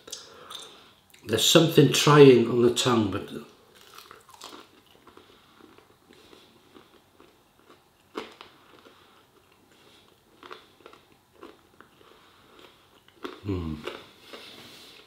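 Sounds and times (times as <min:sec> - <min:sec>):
close-up chewing with mouth clicks: 0:03.8 - 0:15.0.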